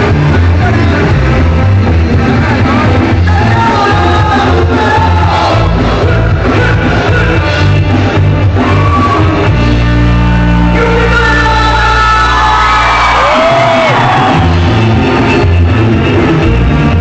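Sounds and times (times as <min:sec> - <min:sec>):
live ska band playing: 0:00.0 - 0:17.0
shouted singing: 0:03.3 - 0:07.4.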